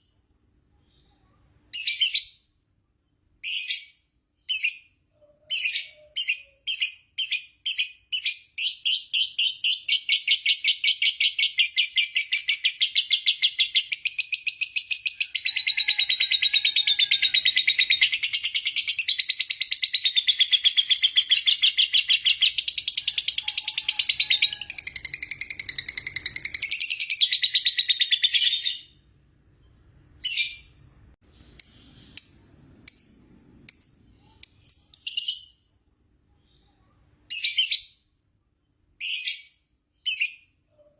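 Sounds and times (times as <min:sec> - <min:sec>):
bird chirping and rattling trill: 0:03.4 - 0:28.9, 0:30.2 - 0:35.6.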